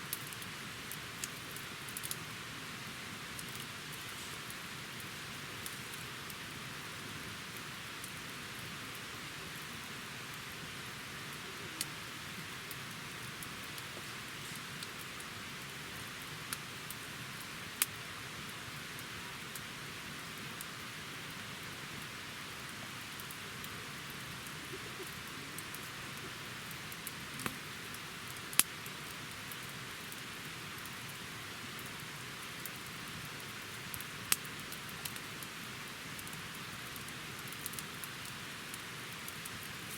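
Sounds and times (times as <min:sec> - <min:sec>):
campfire crackling: 0:00.0 - 0:39.9
fire popping: 0:10.3 - 0:19.6, 0:21.6 - 0:31.2, 0:31.8 - 0:39.9.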